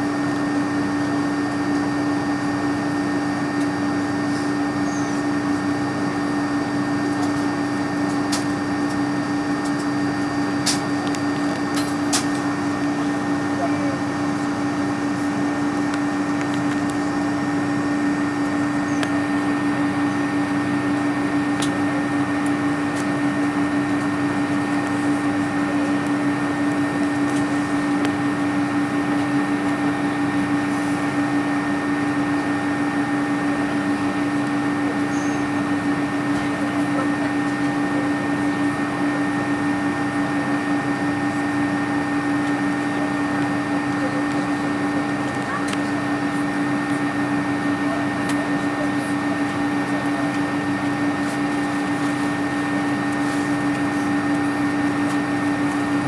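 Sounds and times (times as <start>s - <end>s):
aircraft cabin hum: 6.2s - 30.9s.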